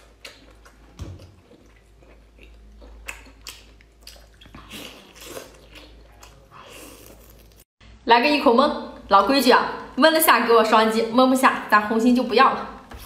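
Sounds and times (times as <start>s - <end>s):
person chewing: 0.0s - 7.7s.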